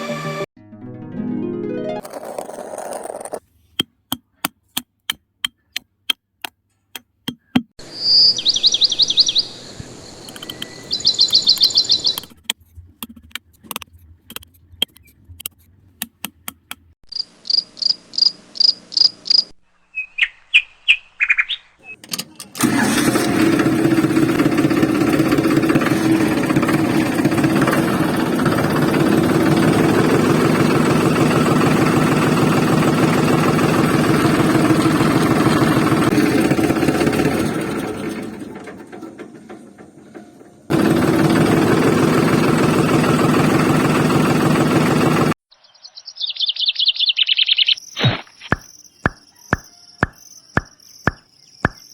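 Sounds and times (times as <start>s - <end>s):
high chirping trills: 7.4s - 12.4s, 17.1s - 22.0s, 45.5s - 51.9s
sharp clicks: 10.3s - 16.9s
engine idling with fast knock: 22.6s - 45.4s, 48.5s - 51.9s.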